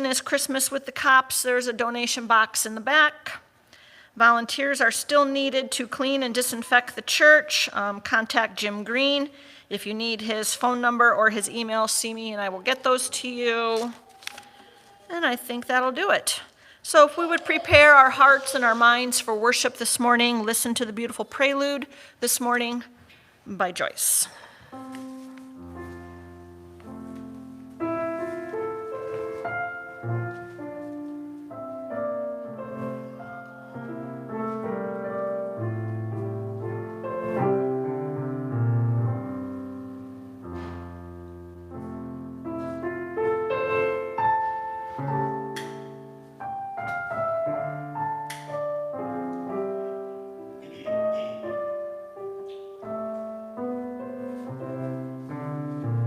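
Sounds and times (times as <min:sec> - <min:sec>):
solo piano playing: 0:24.8 - 0:56.0.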